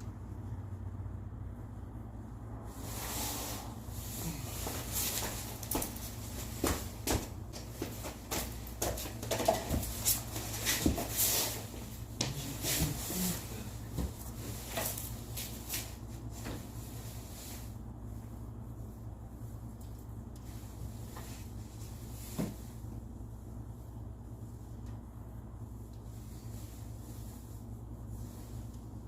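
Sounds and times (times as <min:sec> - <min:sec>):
steady low hum: 0:00.0 - 0:29.0
knocks and clatter of handling: 0:06.6 - 0:11.2.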